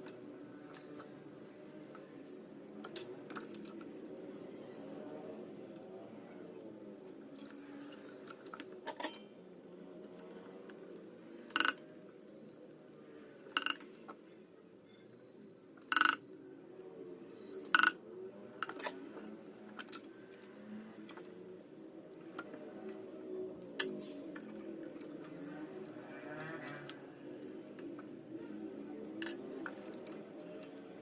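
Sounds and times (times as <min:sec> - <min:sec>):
low background noise: 0:00.0 - 0:31.0
metal parts clicking: 0:13.6 - 0:13.9.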